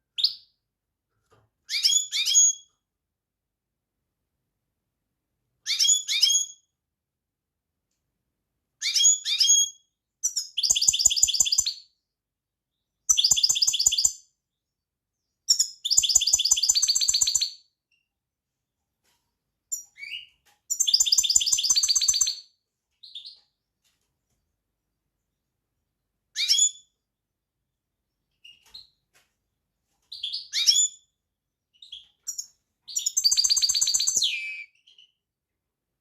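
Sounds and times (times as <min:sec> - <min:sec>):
goldfinch singing: 0:31.8 - 0:35.2.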